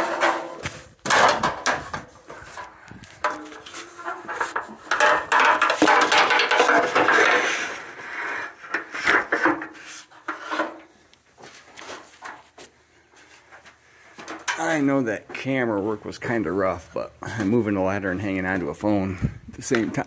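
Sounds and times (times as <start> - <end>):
ladder knocking and scraping on wood: 0.0 - 12.7.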